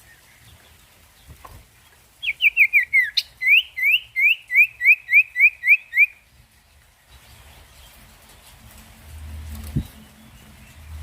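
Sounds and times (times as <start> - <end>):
bird singing whistled notes: 2.2 - 6.2.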